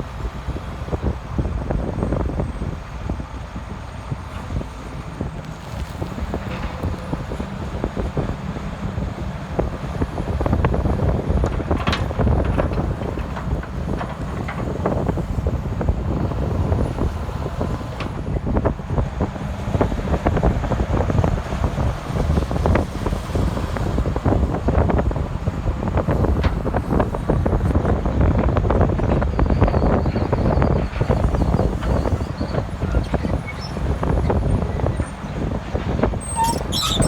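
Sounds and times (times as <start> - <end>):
excavator diesel engine running: 0.0 - 37.0
wind noise on microphone: 0.0 - 37.0.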